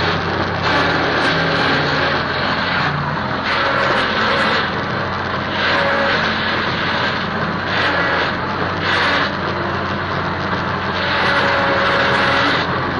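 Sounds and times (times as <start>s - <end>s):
rotary tiller rushing noise: 0.0s - 12.9s
tractor engine hum: 0.0s - 12.9s.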